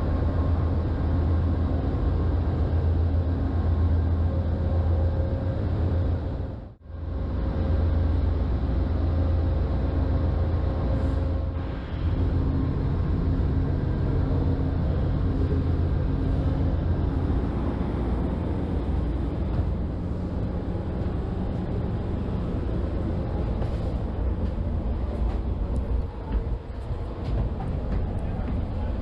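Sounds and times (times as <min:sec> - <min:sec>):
train rumble: 0:00.0 - 0:29.0.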